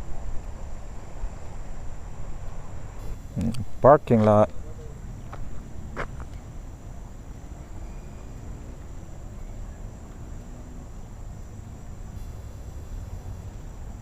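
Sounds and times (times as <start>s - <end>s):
faint rising hum: 0.0s - 14.0s
insects trilling: 0.0s - 14.0s.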